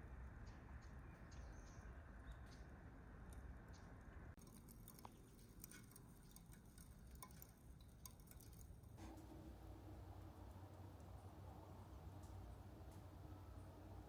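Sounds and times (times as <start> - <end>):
faint small ticks and clicks: 0.2 - 9.4.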